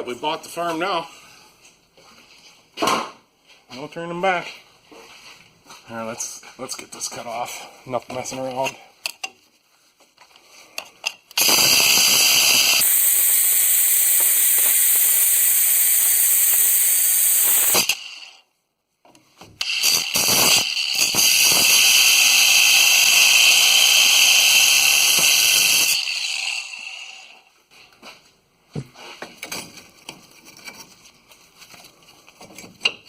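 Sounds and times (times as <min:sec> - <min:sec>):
cut-off disc grinding steel: 0:11.3 - 0:18.4, 0:19.6 - 0:27.5.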